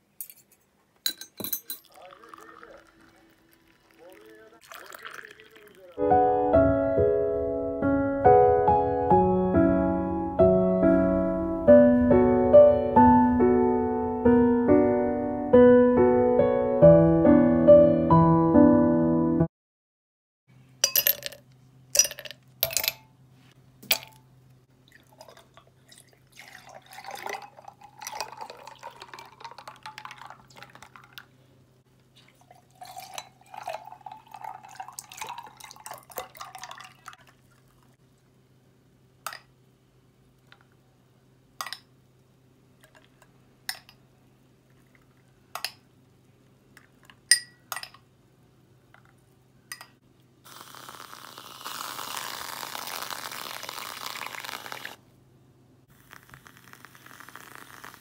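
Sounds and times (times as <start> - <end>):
glass clinking: 0.2 - 5.7, 20.8 - 23.1, 23.9 - 24.2, 26.4 - 30.4, 32.8 - 37.1, 43.7 - 44.0, 47.3 - 48.0, 49.7 - 50.0
light drips: 1.8 - 6.0
liquid poured into a glass: 1.8 - 6.0, 24.8 - 31.3, 32.2 - 38.0, 51.7 - 55.0.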